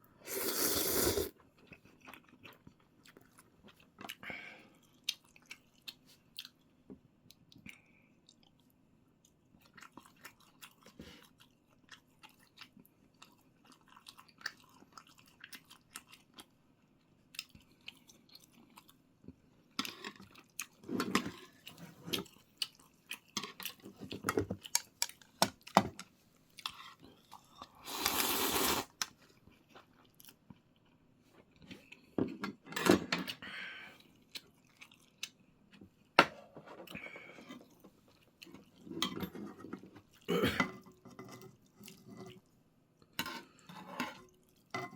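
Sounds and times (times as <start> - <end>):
slurping: 0.2 - 1.4, 27.8 - 29.0
person chewing food: 0.3 - 6.7, 7.4 - 19.0, 19.8 - 25.7, 34.0 - 35.8.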